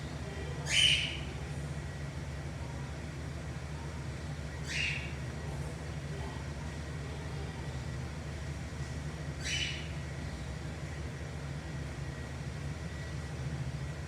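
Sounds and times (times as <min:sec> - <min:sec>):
steady low hum: 0:00.0 - 0:14.0
cockatiel calls: 0:00.6 - 0:01.2, 0:04.6 - 0:05.1, 0:09.4 - 0:09.9.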